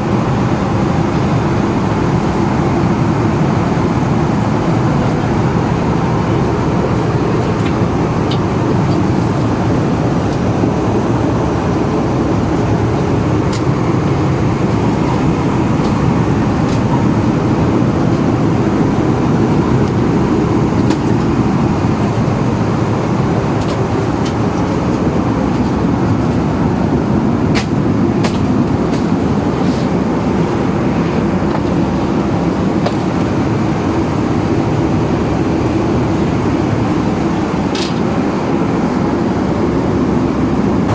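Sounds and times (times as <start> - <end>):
vehicle interior rumble: 0.0 - 40.9.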